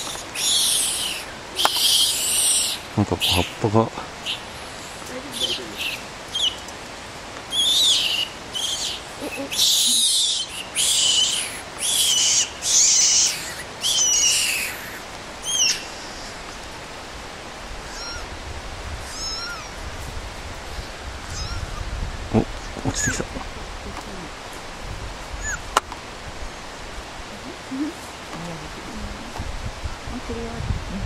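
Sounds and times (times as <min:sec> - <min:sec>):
harsh high bird calls: 0:00.0 - 0:03.6, 0:04.2 - 0:06.7, 0:07.5 - 0:16.6, 0:17.8 - 0:18.4, 0:19.0 - 0:19.8, 0:20.8 - 0:21.9, 0:25.3 - 0:25.7.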